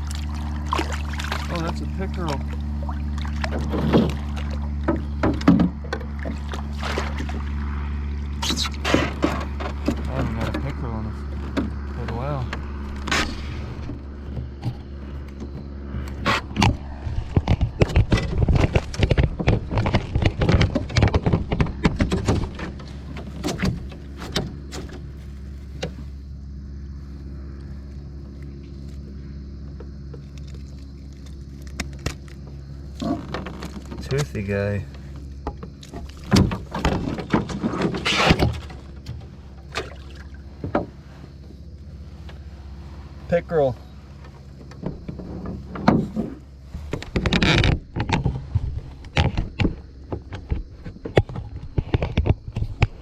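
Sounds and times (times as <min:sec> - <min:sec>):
small water splashes: 0:00.0 - 0:05.2, 0:06.1 - 0:08.8, 0:39.6 - 0:40.5
knocks and bumps in canoe: 0:00.0 - 0:26.0, 0:32.9 - 0:53.0
steady low hum: 0:00.0 - 0:53.0.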